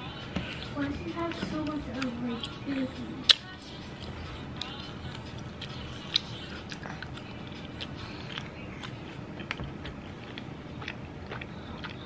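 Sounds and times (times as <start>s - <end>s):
chewing: 0.0s - 12.0s
wet mouth clicks and smacks: 5.6s - 12.0s.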